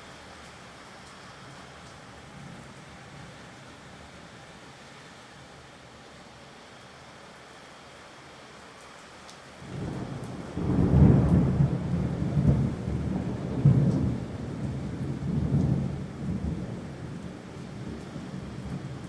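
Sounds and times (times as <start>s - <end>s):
falling rain: 0.0s - 19.0s
rolling thunder: 9.7s - 19.0s.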